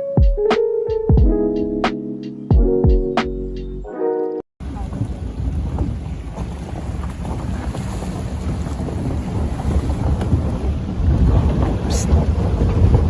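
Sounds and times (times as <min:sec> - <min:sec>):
wind buffeting microphone: 0:04.6 - 0:13.0.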